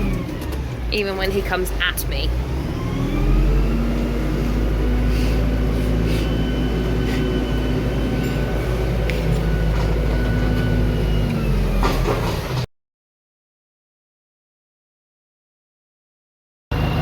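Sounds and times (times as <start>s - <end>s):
tractor diesel engine rumbling: 0.0s - 12.7s.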